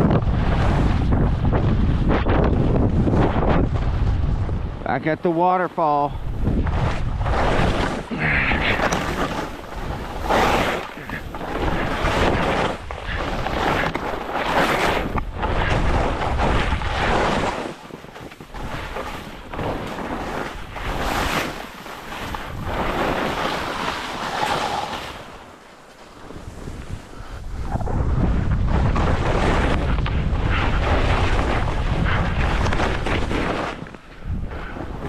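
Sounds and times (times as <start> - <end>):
wind buffeting the microphone: 0.0 - 5.3, 6.0 - 35.0
skis hissing over snow: 6.9 - 27.7.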